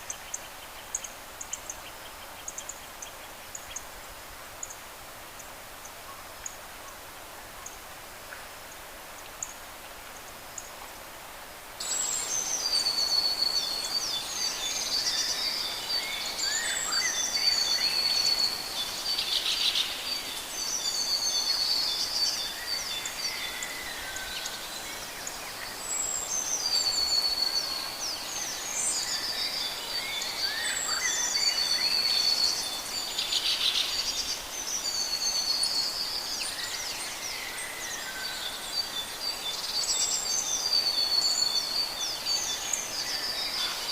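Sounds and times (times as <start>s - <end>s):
birds singing: 11.8s - 43.9s.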